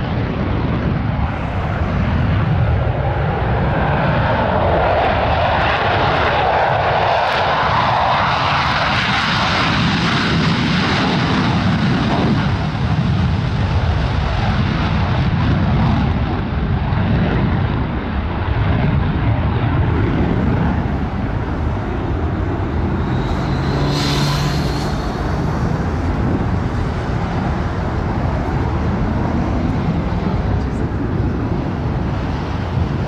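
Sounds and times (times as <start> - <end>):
aircraft engine rush: 0.0 - 33.0.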